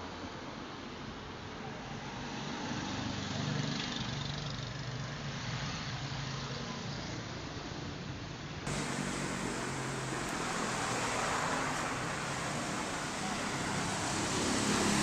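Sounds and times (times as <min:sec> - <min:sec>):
steady rushing noise: 0:08.7 - 0:15.0
vehicle engine humming: 0:08.7 - 0:15.0.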